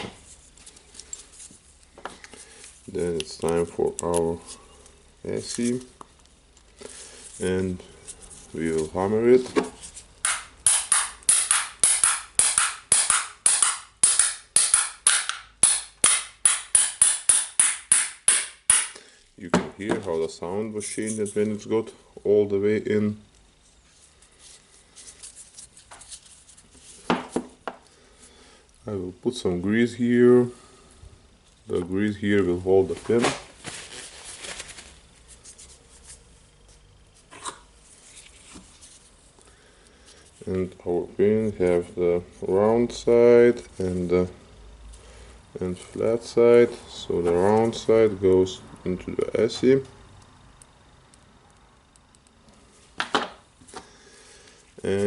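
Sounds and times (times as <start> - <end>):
hammer on metal: 10.3 - 19.0.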